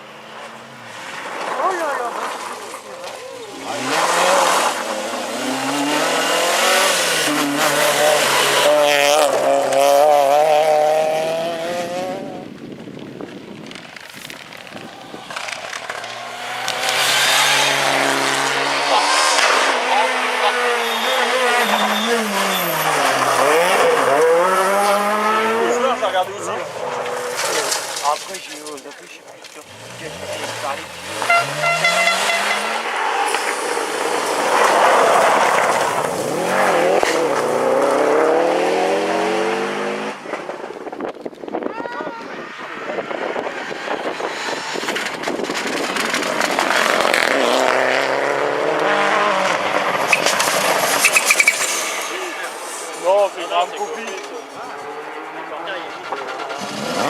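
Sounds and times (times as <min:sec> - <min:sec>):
rally car engine passing by: 0:00.3 - 0:12.5, 0:14.8 - 0:28.0, 0:29.6 - 0:40.8, 0:42.4 - 0:57.0
loud rushing noise: 0:14.2 - 0:20.9.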